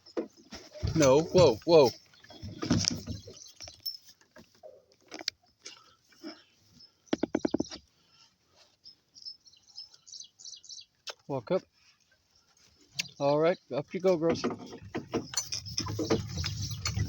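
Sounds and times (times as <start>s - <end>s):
leaves and twigs rustling: 0.0s - 6.8s
donkeys chewing: 0.0s - 13.2s, 13.8s - 17.0s.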